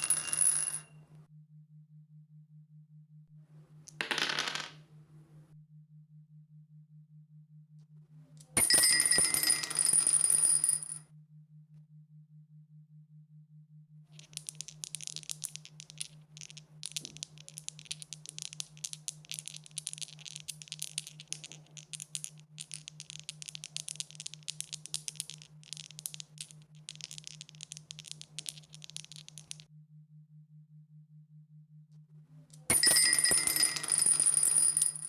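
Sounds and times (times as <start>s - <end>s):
dice rattling: 3.9s - 4.8s, 14.2s - 29.6s.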